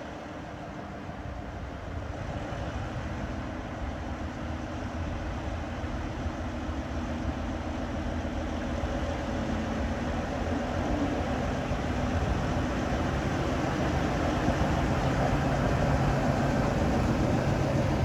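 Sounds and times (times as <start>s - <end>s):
train rumbling: 3.9s - 18.0s.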